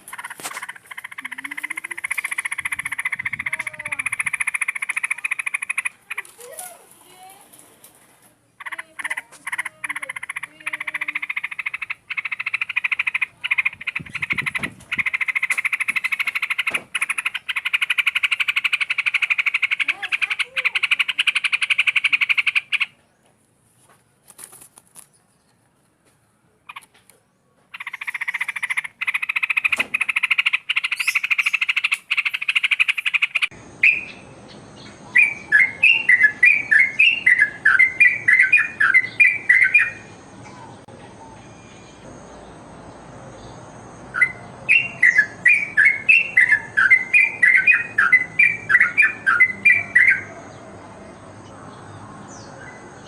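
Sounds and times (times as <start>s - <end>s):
bird bubbly whistled chirps: 33.8s - 34.2s, 35.1s - 40.1s, 44.1s - 50.3s.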